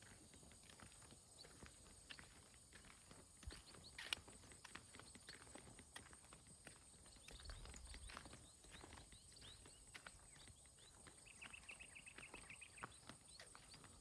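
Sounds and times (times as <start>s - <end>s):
footsteps on a path: 0.0s - 14.0s.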